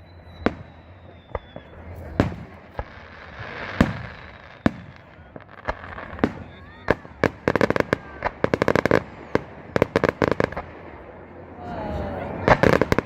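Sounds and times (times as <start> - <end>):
thin high whistle: 0.0 - 2.2, 3.9 - 5.5
fireworks bangs: 0.0 - 13.0
fireworks hissing: 0.0 - 13.0.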